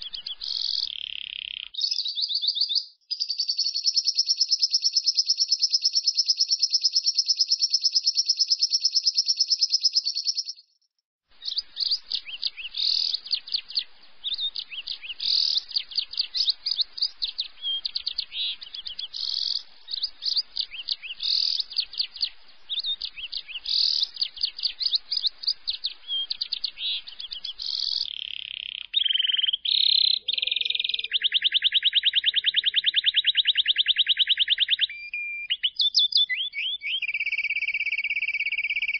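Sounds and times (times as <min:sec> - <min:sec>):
lovebird fast shrill trills: 0:00.0 - 0:02.6, 0:11.4 - 0:31.6, 0:36.9 - 0:38.9
lovebird uneven chattering: 0:00.0 - 0:10.6, 0:11.4 - 0:38.9.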